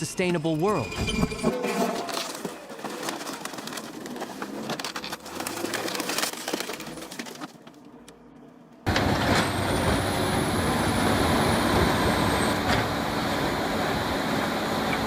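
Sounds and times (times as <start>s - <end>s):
heavy machinery running: 8.9s - 15.0s.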